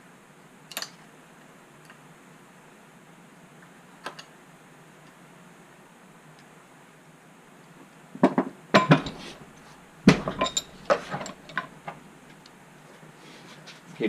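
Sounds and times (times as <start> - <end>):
metal vise parts clanking: 8.8 - 12.0.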